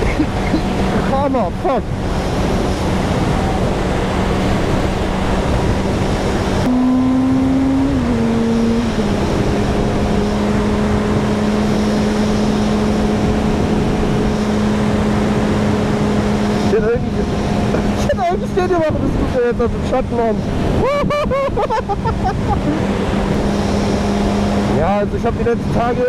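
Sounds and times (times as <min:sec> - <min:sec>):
motorcycle engine running: 0:00.0 - 0:20.8
wind noise: 0:00.0 - 0:26.0.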